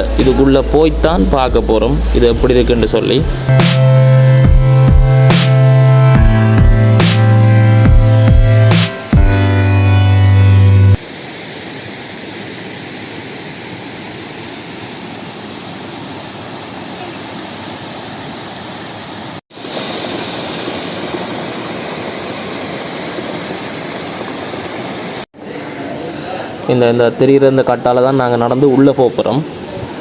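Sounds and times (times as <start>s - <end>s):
music: 0.0s - 11.0s
water rushing over cascades: 11.0s - 25.2s.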